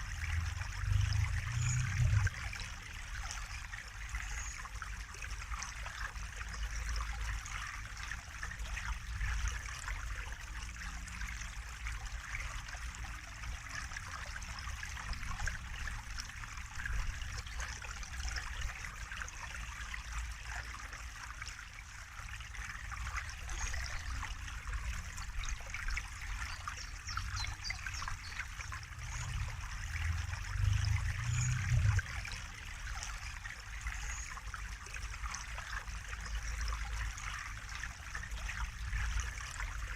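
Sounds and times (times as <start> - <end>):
water trickling and babbling: 0.0 - 39.9
low rumble: 0.2 - 2.4, 28.6 - 32.2.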